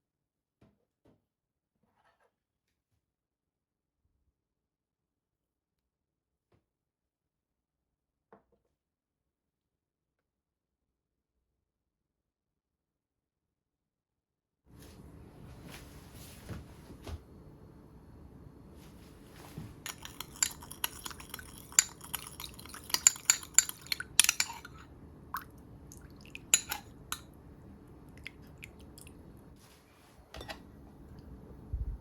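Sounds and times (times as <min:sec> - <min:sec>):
utensils clinking against a pan: 0:19.9 - 0:24.9, 0:26.4 - 0:27.2.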